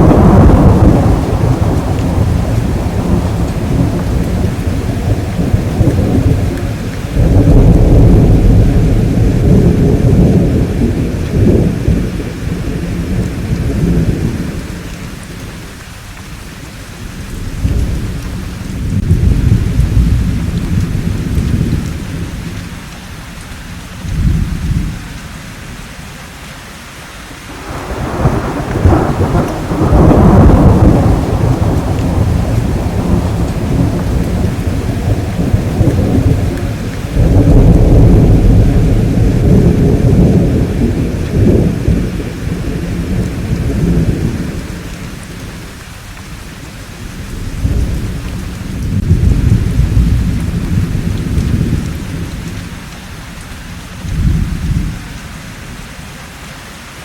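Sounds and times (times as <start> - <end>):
rolling thunder: 0.0 - 15.8, 16.9 - 22.9, 24.0 - 25.8, 27.4 - 53.2, 53.9 - 55.1
steady rain: 0.0 - 57.0.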